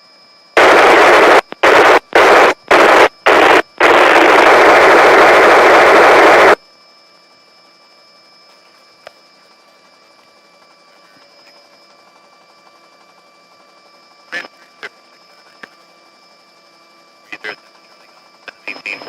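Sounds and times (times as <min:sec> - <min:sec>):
police radio static bursts: 0:00.6 - 0:06.6, 0:14.3 - 0:15.6, 0:17.3 - 0:19.0.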